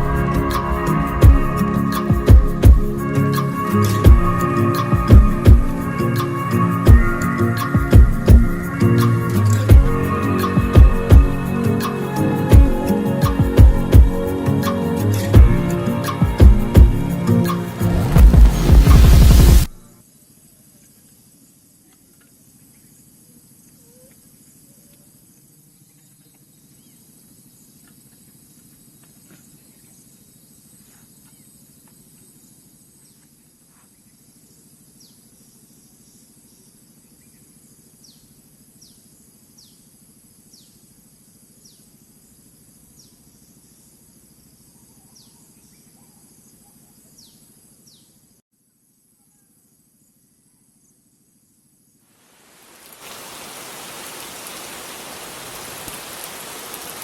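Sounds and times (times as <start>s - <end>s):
low hum: 0.0s - 19.8s
high insect drone: 0.0s - 46.5s, 49.6s - 57.0s.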